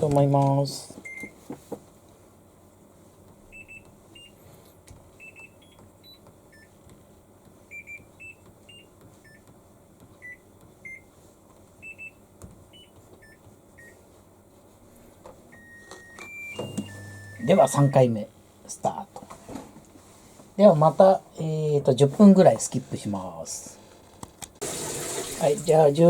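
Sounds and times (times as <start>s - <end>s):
washing machine button beeps: 1.0s - 1.4s, 3.5s - 4.4s, 5.2s - 6.7s, 7.7s - 9.4s, 10.2s - 11.0s, 11.8s - 14.0s, 15.5s - 18.2s
long steady electronic tone: 15.5s - 18.2s.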